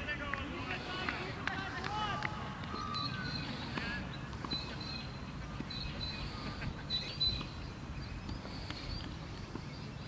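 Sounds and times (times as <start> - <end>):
birds chirping: 0.2 - 10.0.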